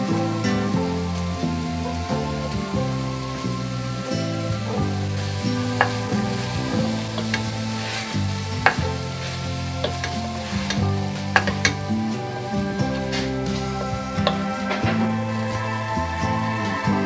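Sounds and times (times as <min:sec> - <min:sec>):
meat and onion sizzling: 0:00.0 - 0:17.0
soft background music: 0:00.0 - 0:17.0
wooden spoon knocking on pot: 0:05.8 - 0:07.5, 0:08.6 - 0:09.1, 0:09.8 - 0:12.0.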